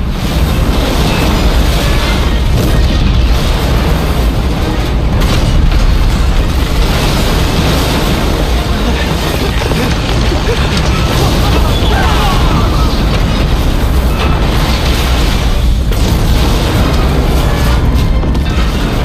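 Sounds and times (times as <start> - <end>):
heavy explosion rumble: 0.0 - 19.0
dramatic orchestral music: 0.1 - 19.0.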